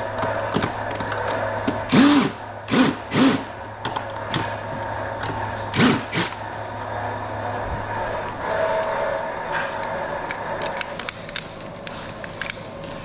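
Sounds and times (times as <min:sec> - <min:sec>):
steady low hum: 0:00.0 - 0:13.0
cordless drill spinning: 0:01.9 - 0:03.4, 0:05.7 - 0:06.4.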